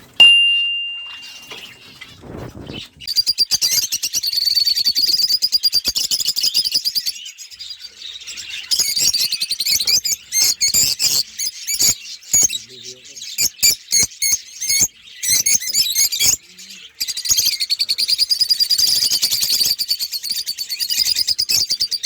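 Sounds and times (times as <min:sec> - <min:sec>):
cage birds chirping: 0:00.0 - 0:22.0
sharp ringing ping: 0:00.2 - 0:01.5.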